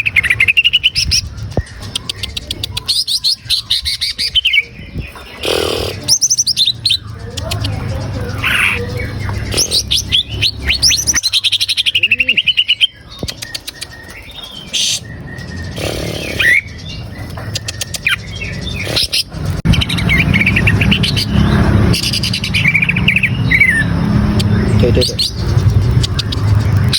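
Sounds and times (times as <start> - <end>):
bird singing chirps and trills: 0.0 - 26.9
quick clicking bird notes: 0.3 - 3.2, 13.1 - 16.6, 17.2 - 21.3, 25.1 - 26.9.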